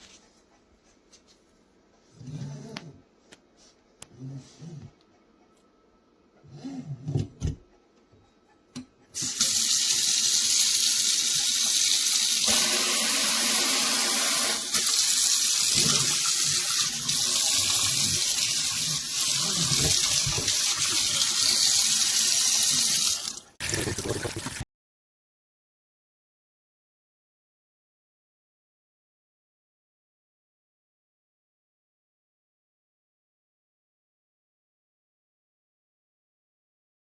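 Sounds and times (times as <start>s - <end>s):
faucet water running into sink: 9.2s - 24.6s.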